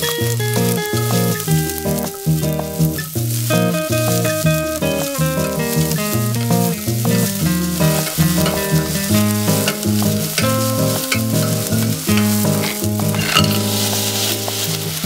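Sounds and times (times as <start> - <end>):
background music: 0.0 - 15.0
onions sizzling in oil: 0.0 - 15.0
wooden spatula stirring in pot: 4.1 - 14.9.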